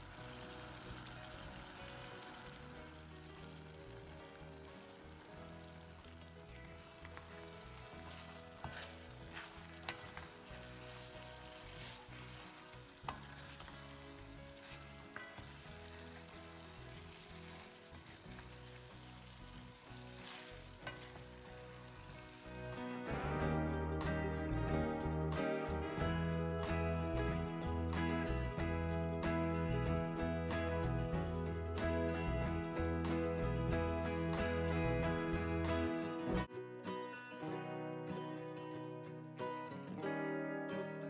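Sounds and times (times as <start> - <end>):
meatballs sizzling in a pan: 0.0 - 23.8
wooden spatula stirring: 3.2 - 22.8.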